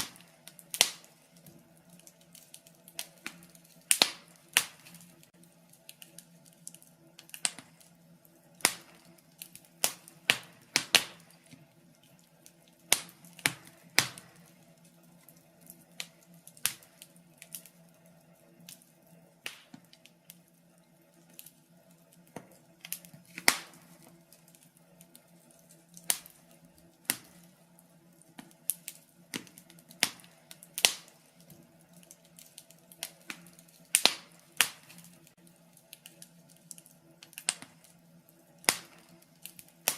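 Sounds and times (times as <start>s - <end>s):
faint steady hum: 0.0s - 39.9s
wood fire crackling: 0.0s - 39.9s.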